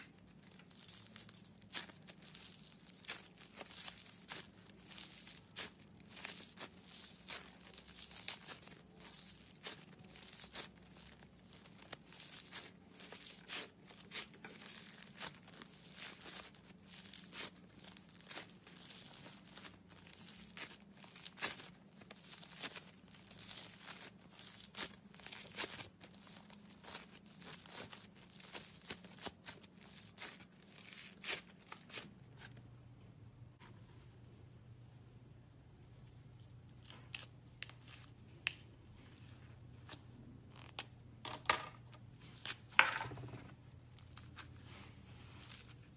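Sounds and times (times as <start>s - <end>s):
slime squishing and crackling: 0.0s - 32.5s, 42.5s - 45.9s
faint low hum: 0.0s - 45.9s.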